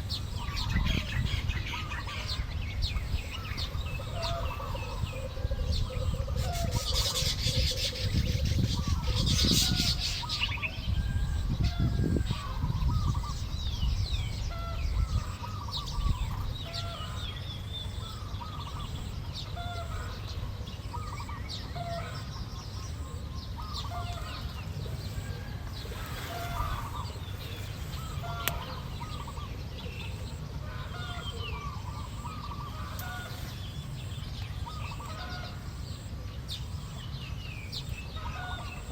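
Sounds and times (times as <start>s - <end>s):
birds chattering and chirping: 0.0s - 38.9s
low rumbling and rustling: 24.4s - 30.1s.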